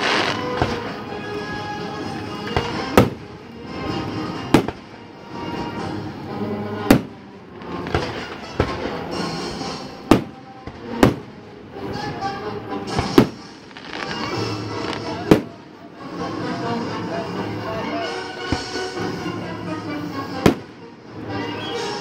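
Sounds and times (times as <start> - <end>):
weaker firework cracks: 0.0 - 1.0, 2.4 - 3.3, 4.5 - 5.0, 6.8 - 9.2, 10.0 - 11.4, 12.9 - 15.7, 20.4 - 20.8
firework shells bursting: 13.0 - 15.6, 20.4 - 20.8.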